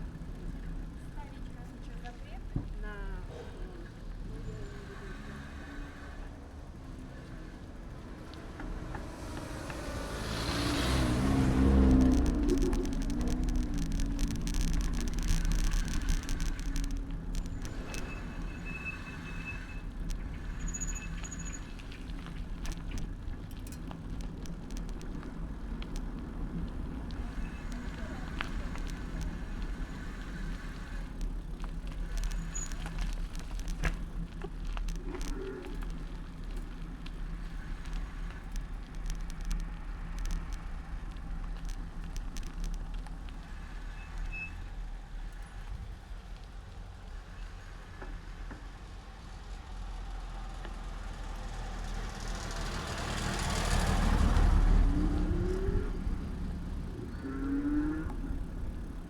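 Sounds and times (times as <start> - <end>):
traffic rumble: 0.0 - 59.0
motor vehicle passing: 3.0 - 44.0, 51.4 - 59.0
bicycle clicks: 7.9 - 47.0, 52.2 - 59.0.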